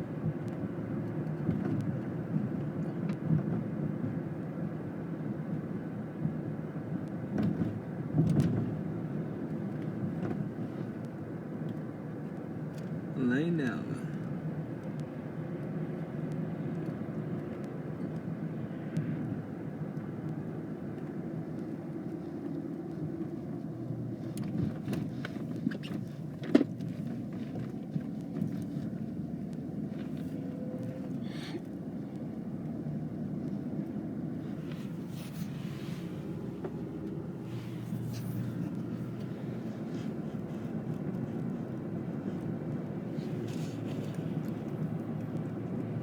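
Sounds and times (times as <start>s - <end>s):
car cabin rumble: 20.4s - 46.0s.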